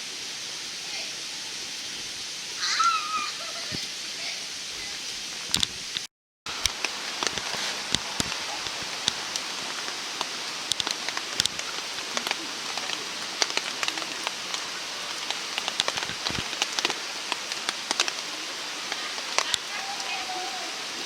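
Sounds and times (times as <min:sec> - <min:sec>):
wood fire crackling: 0:00.1 - 0:21.0.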